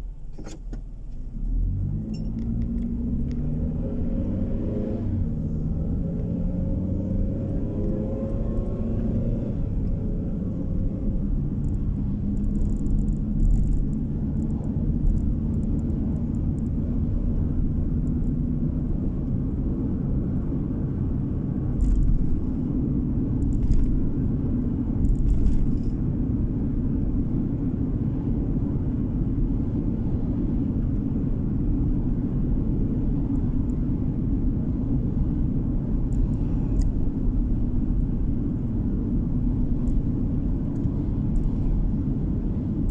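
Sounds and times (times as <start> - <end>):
car road and engine rumble: 0.0 - 42.9.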